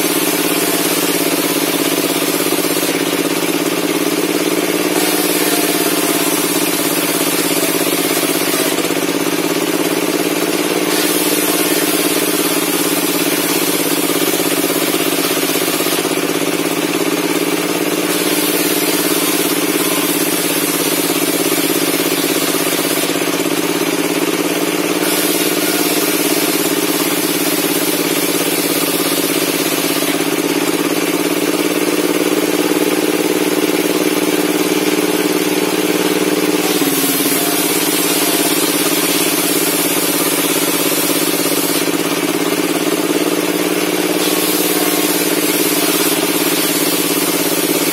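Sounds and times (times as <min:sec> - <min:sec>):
circular saw running: 0:00.0 - 0:47.9.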